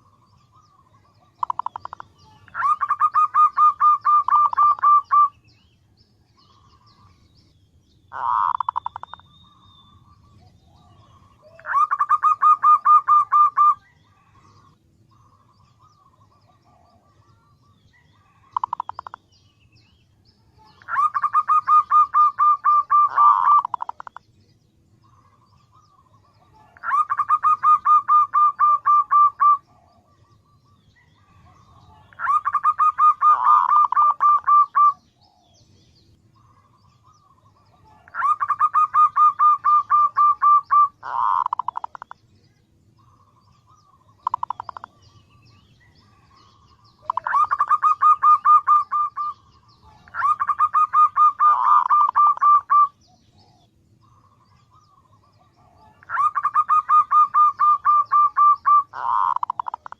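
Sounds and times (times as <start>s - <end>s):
dove cooing: 0.9s - 5.4s, 8.1s - 9.2s, 10.0s - 19.2s, 20.6s - 24.2s, 25.0s - 35.7s, 36.4s - 42.2s, 43.0s - 59.9s.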